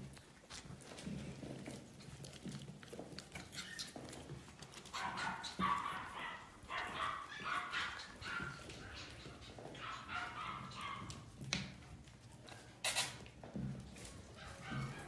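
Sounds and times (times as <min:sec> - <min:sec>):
puppies yipping and whining: 0:03.3 - 0:11.3, 0:14.1 - 0:15.0.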